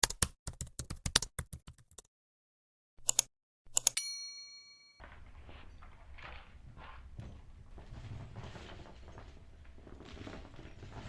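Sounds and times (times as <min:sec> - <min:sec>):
bell ding: 0:04.0 - 0:05.0.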